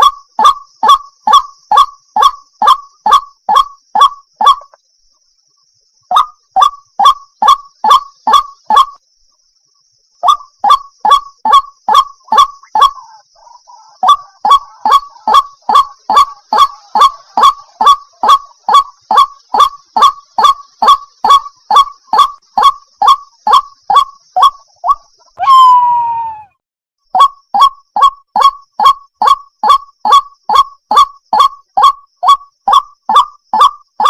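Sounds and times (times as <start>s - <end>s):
waterhen honking calls: 10.2s - 26.4s.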